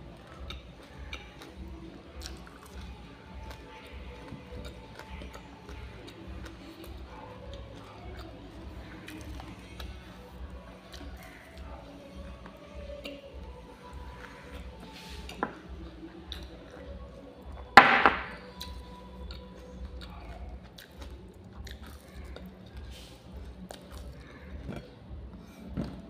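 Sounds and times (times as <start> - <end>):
person chewing sticky food: 0.0 - 26.0.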